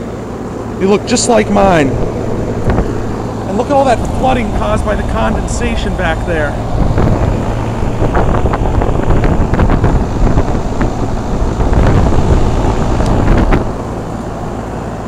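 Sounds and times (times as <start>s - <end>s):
air conditioner fans running: 0.0s - 15.0s
wind rumble on microphone: 1.0s - 15.0s.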